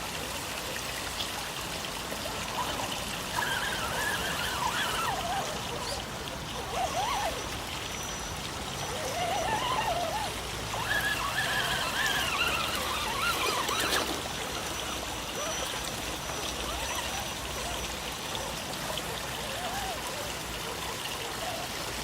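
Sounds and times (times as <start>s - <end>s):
trickling water: 0.0s - 22.0s
electric motor whine: 8.8s - 17.2s.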